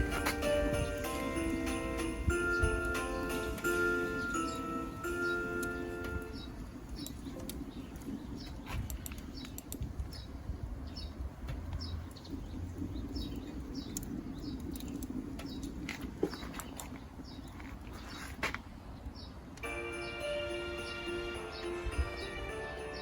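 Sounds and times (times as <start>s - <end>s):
sharp clicks: 6.9s - 10.1s.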